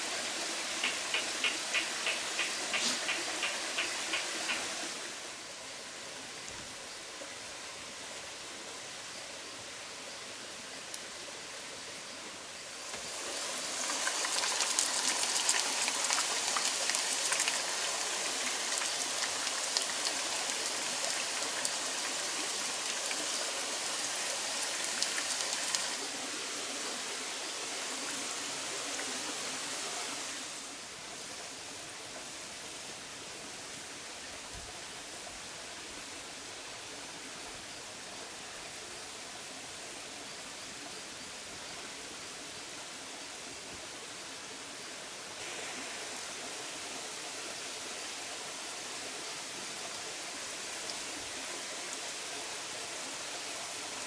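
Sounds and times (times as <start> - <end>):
potatoes sizzling in hot oil: 0.0 - 5.2, 12.6 - 32.8
steady hiss: 0.0 - 54.0.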